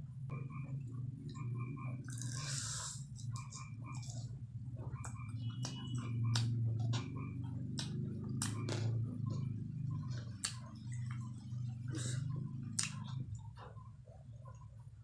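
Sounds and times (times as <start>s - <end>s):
steady low hum: 0.0s - 15.0s
person chewing with wet smacks: 2.0s - 13.7s.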